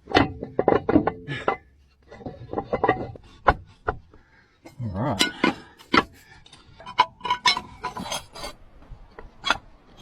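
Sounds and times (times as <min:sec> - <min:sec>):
metallic clinks and knocks: 0:00.0 - 0:03.2.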